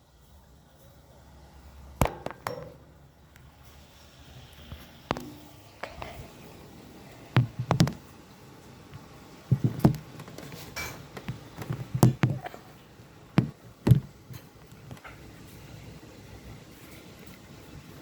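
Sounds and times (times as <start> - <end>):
irregular knocks and clicks: 7.4 - 8.0, 9.0 - 12.6, 13.4 - 15.2.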